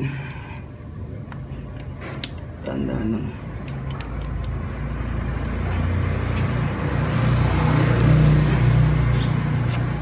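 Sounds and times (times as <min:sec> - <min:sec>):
vehicle engine passing: 0:04.3 - 0:10.0.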